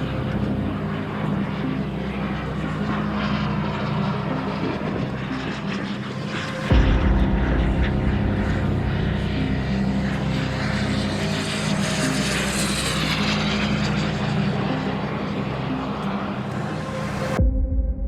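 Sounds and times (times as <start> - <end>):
model aircraft engine: 0.0 - 6.8, 8.5 - 17.4.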